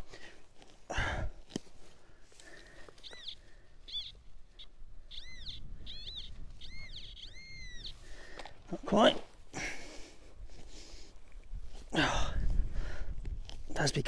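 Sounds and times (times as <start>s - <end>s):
bird calling: 2.4s - 8.5s.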